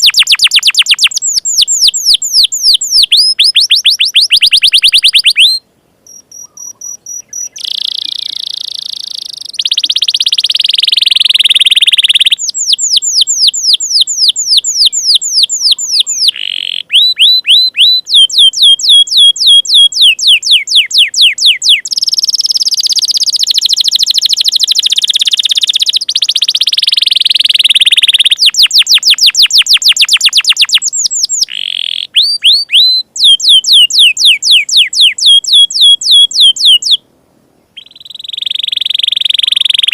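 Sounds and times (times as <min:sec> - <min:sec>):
canary singing: 0:00.0 - 0:37.0, 0:37.8 - 0:39.9.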